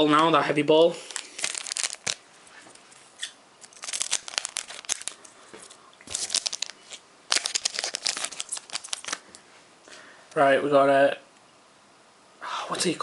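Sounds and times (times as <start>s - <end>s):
foil wrapper tearing and crinkling: 1.1s - 2.2s, 3.2s - 5.3s, 6.1s - 9.3s.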